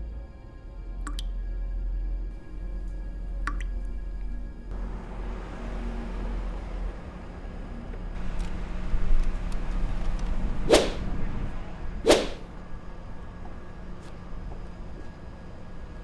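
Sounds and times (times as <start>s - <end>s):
steady low rumble: 1.7s - 15.9s
whip cracks: 10.7s - 11.1s, 12.0s - 12.4s.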